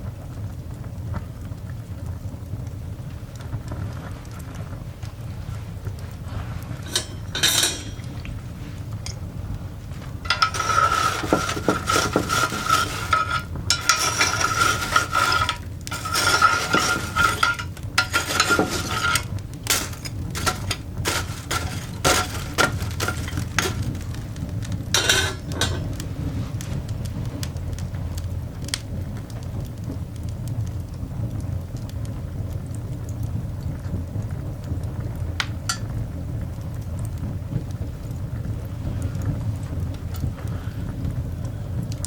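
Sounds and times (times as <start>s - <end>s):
fire irons scraping coals: 5.6s - 9.0s, 9.9s - 27.5s
metal clinks and knocks: 10.3s - 24.2s.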